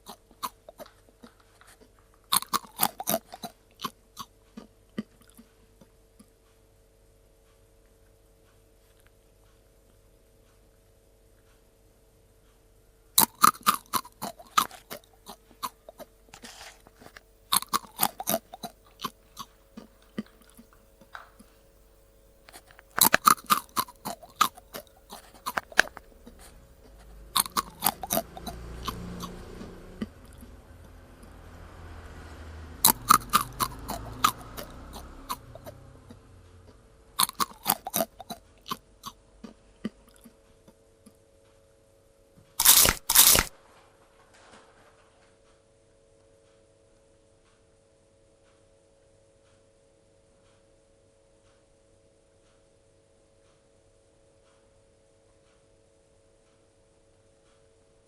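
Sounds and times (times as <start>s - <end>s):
cat crunching dry kibble: 0.0s - 3.9s, 13.2s - 21.7s, 22.5s - 29.4s, 32.9s - 35.5s, 37.2s - 38.8s, 42.6s - 43.5s.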